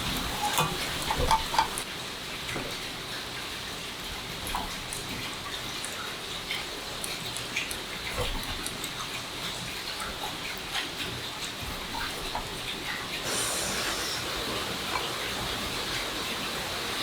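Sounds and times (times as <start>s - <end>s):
heavy rain hissing: 13.2s - 17.0s.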